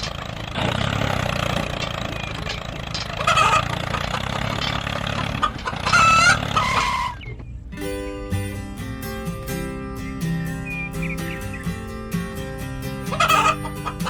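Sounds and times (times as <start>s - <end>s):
small engine running: 0.0s - 7.2s, 8.2s - 14.0s
short high honk-like calls: 13.1s - 14.0s.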